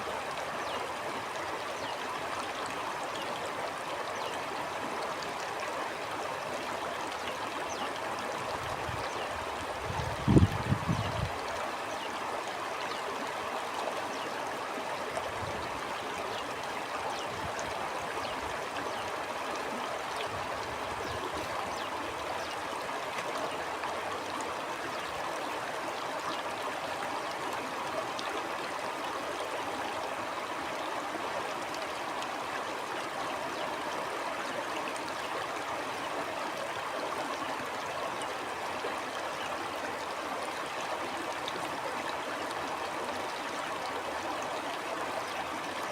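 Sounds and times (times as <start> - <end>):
stream running water: 0.0 - 45.9
water trickling and splashing: 0.0 - 45.9.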